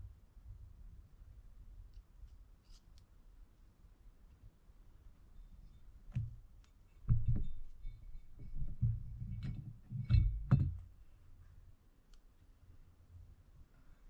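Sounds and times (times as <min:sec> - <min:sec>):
tools knocking on workbench: 0:08.7 - 0:10.8.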